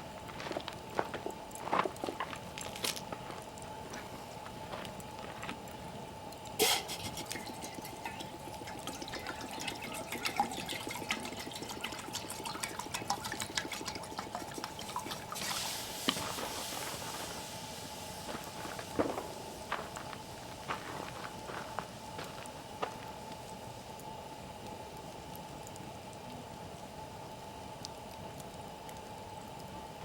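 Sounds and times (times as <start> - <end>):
campfire crackling and popping: 0.0 - 30.0
hiss: 6.6 - 7.4, 15.1 - 22.7.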